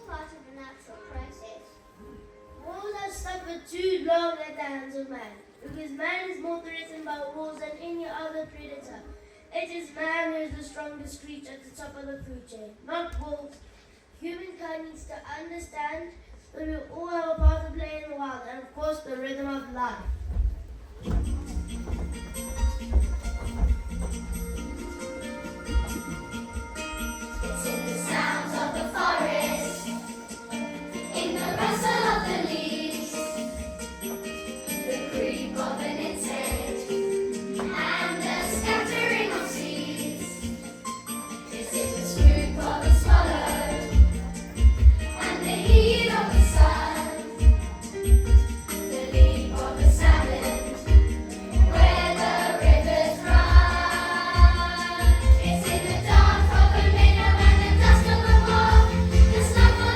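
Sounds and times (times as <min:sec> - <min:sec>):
backing track music: 0:20.2 - 0:59.9
children singing: 0:27.4 - 0:33.6, 0:34.9 - 0:40.4, 0:41.4 - 0:44.3, 0:45.1 - 0:47.5, 0:48.8 - 0:59.9.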